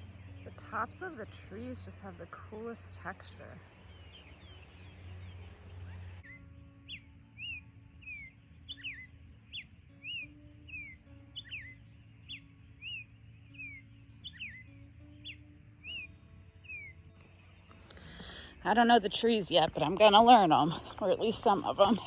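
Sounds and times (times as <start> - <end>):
low sustained notes: 0.0 - 22.0
chirping whistles: 12.8 - 14.6.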